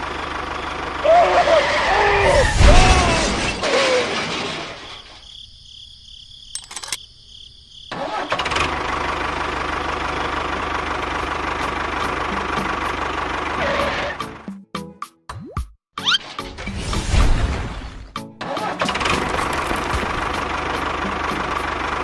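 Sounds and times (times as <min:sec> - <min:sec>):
clicks: 0:06.6 - 0:07.0
vehicle motor chugging: 0:07.9 - 0:14.5, 0:18.9 - 0:22.0.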